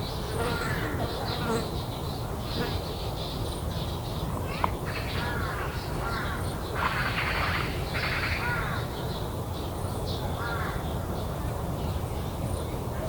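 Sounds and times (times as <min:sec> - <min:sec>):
crows cawing: 0:04.5 - 0:08.9, 0:10.4 - 0:10.8.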